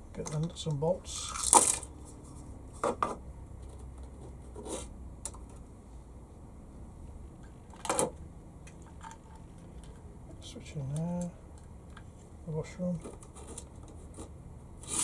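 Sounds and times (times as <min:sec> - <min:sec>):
low steady hum: 0:00.0 - 0:15.0
small screws clicking and scraping: 0:01.2 - 0:01.9, 0:07.4 - 0:10.1, 0:13.0 - 0:15.0.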